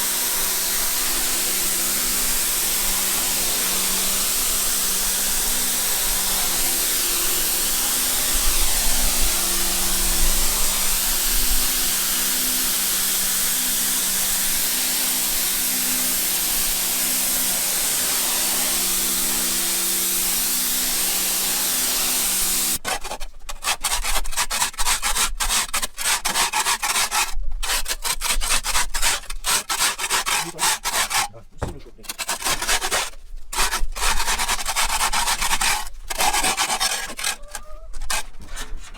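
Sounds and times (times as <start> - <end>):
spraying hiss: 0.0 - 22.8.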